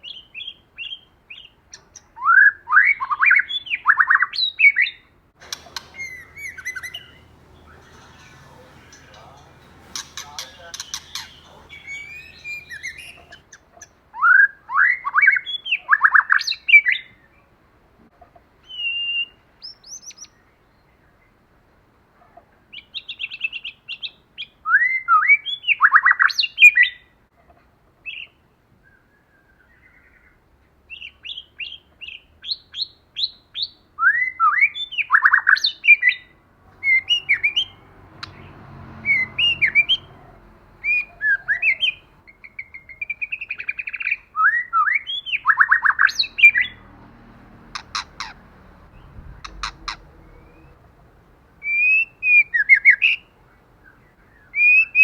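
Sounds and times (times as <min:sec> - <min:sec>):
short bird calls: 0:02.8 - 0:13.5, 0:30.9 - 0:46.8, 0:47.6 - 0:55.0
bird singing rising whistles: 0:05.6 - 0:13.4, 0:18.7 - 0:20.0, 0:51.6 - 0:53.3, 0:54.4 - 0:55.0.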